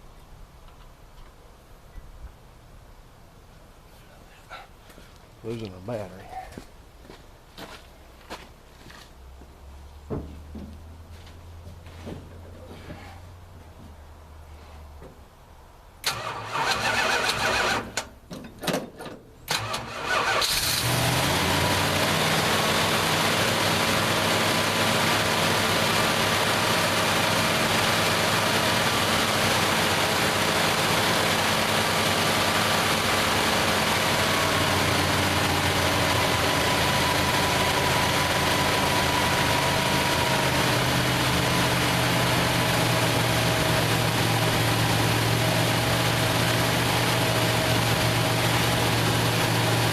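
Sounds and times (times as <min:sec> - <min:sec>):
engine cranking: 0:16.0 - 0:18.1, 0:19.5 - 0:22.0
engine running steadily: 0:19.5 - 0:49.9.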